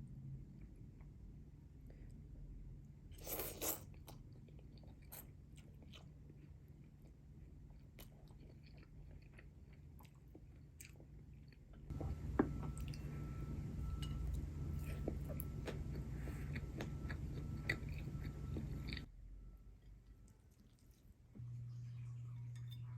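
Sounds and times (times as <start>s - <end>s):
person chewing food: 3.2s - 19.1s, 19.8s - 21.1s.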